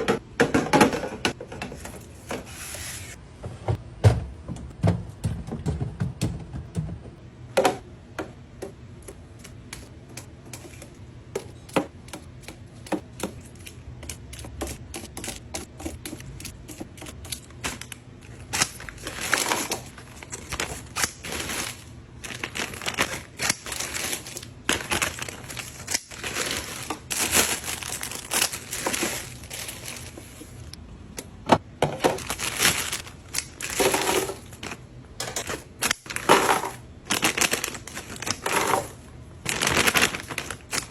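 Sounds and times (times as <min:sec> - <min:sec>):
crinkling rustling: 0:17.3 - 0:30.8, 0:32.0 - 0:40.9.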